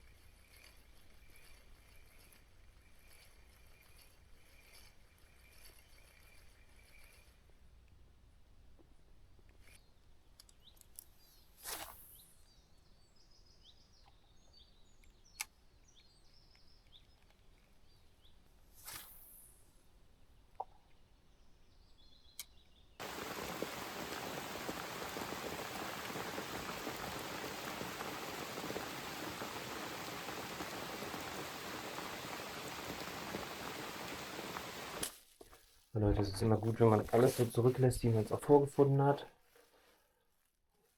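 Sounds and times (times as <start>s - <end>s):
faint bird chirps: 0.0s - 7.7s
steady even hiss: 23.0s - 35.1s.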